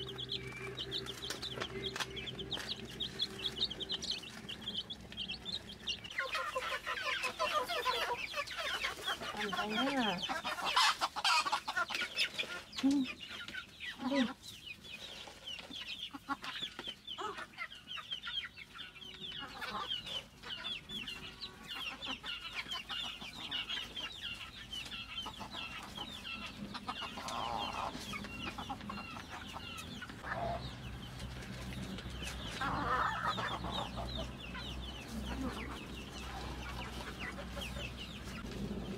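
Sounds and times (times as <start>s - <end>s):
chickens clucking: 0.0s - 38.9s
high-pitched chick peeping: 0.0s - 38.9s.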